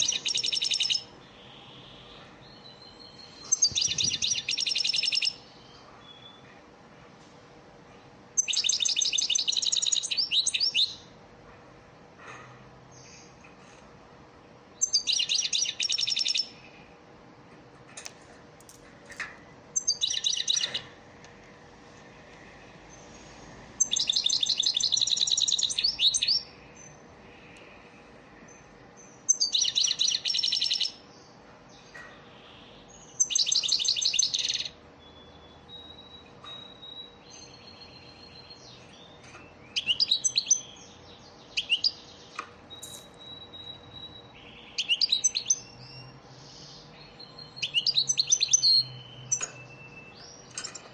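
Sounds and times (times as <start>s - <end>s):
goldfinch twittering song: 2.5s - 6.4s, 8.4s - 11.0s, 19.8s - 20.8s, 23.8s - 26.5s, 29.3s - 31.0s, 33.0s - 42.1s, 42.7s - 50.7s.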